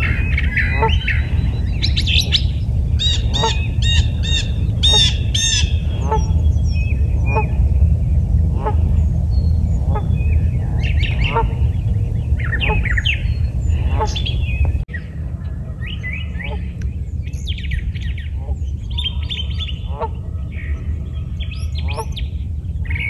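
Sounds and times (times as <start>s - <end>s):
geese honking: 0.0s - 6.4s, 7.2s - 7.6s, 8.5s - 9.0s, 9.8s - 11.7s, 12.4s - 14.4s, 18.4s - 22.2s
small birds chirping: 0.0s - 23.0s
steady low rumble: 0.0s - 23.0s.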